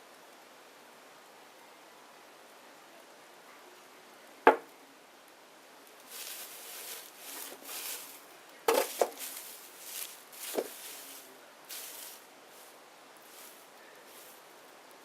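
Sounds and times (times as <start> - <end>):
wood fire hissing: 5.1 - 15.0
burning wood popping and cracking: 6.0 - 11.0.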